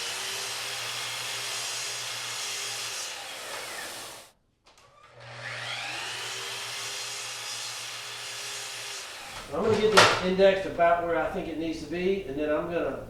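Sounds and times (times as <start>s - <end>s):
miter saw running: 5.0s - 9.4s.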